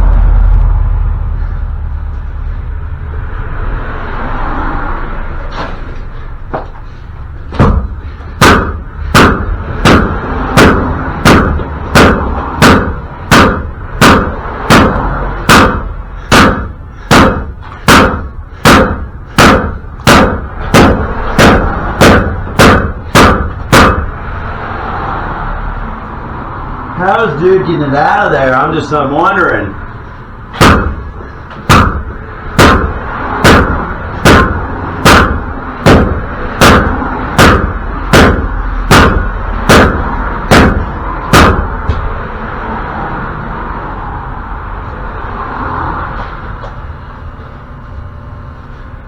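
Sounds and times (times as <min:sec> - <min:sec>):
hammer striking metal: 0:07.5 - 0:24.2, 0:30.5 - 0:42.1.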